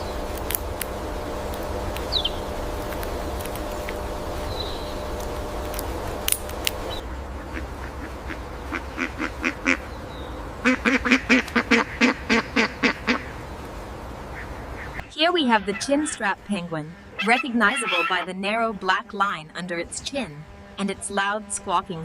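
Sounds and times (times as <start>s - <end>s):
steady hiss: 0.0s - 15.1s
low hum: 0.0s - 22.0s
penguin squawking call: 15.3s - 16.4s, 17.2s - 18.4s.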